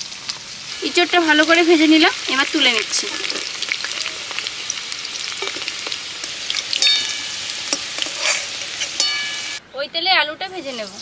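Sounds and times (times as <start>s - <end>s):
food sizzling in hot oil: 0.0s - 9.6s
metallic clink: 6.8s - 7.8s, 9.0s - 9.6s
ladle clicking and scraping: 7.7s - 9.1s.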